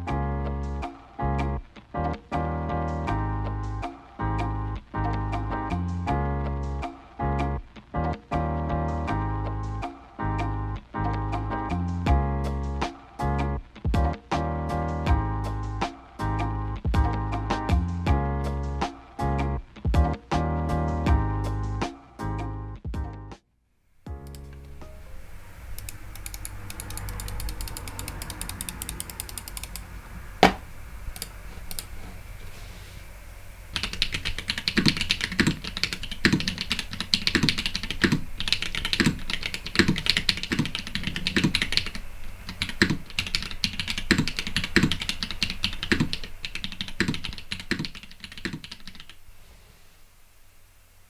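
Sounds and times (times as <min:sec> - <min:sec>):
mechanical keyboard typing: 0:25.7 - 0:30.6, 0:31.2 - 0:31.9, 0:33.8 - 0:49.2
deeper keystroke: 0:25.7 - 0:32.0.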